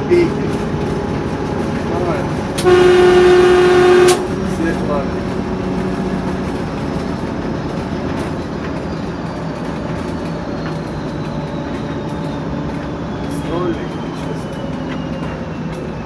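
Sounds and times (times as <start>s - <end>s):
diesel locomotive rumbling: 0.0s - 16.0s
turbocharger whistle: 2.6s - 4.3s.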